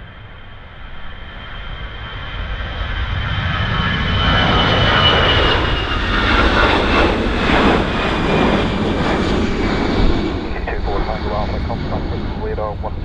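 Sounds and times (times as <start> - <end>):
jet engine roar: 0.0 - 13.0
high engine whine: 10.3 - 13.0.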